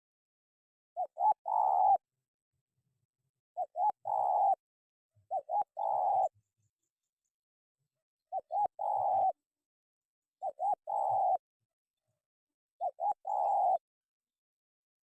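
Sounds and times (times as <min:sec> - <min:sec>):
dove cooing: 0:01.0 - 0:02.0, 0:03.6 - 0:04.6, 0:05.3 - 0:06.4, 0:08.3 - 0:09.4, 0:10.4 - 0:11.4, 0:12.8 - 0:13.8.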